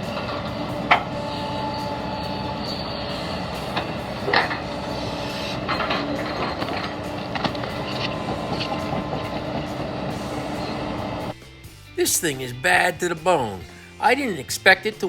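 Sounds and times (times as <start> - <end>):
excavator engine under load: 0.0 - 11.4.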